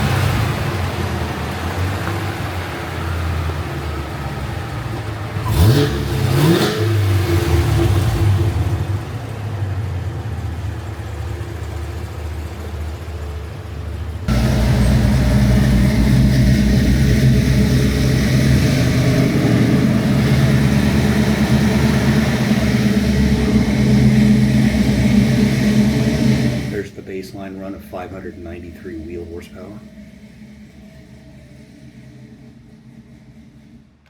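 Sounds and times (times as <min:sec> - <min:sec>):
car engine droning: 0:00.0 - 0:34.0.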